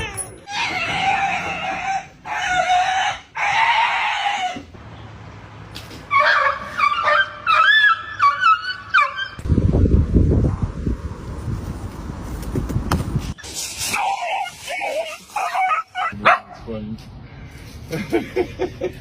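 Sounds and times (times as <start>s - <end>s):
dog yelps and whines: 0.0s - 4.6s, 6.1s - 9.4s, 14.0s - 16.4s.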